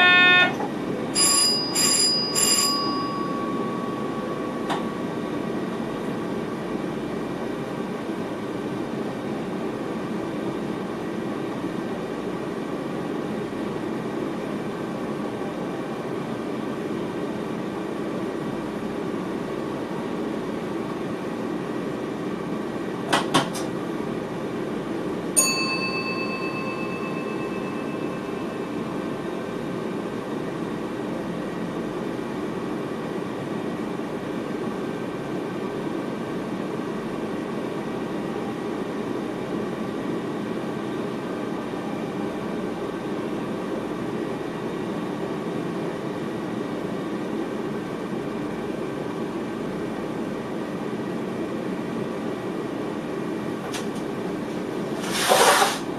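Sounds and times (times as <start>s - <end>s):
train running noise: 0.0s - 9.7s, 53.4s - 55.9s
bright chime: 25.4s - 28.7s.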